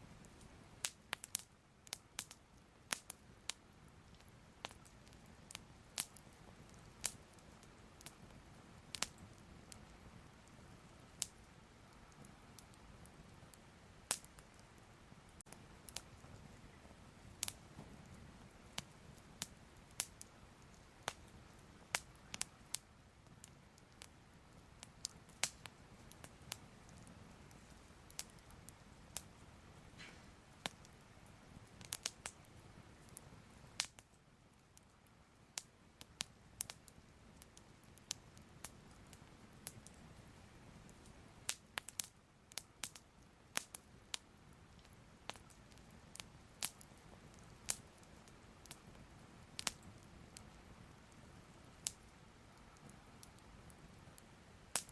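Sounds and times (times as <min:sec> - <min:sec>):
faint low rumble: 0:00.0 - 0:41.5
fire crackling: 0:00.0 - 0:54.9.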